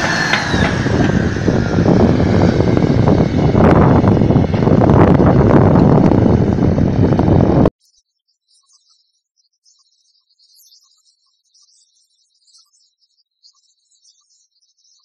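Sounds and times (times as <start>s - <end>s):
tractor diesel engine under load: 0.0s - 7.7s
wind buffeting microphone: 0.0s - 7.7s.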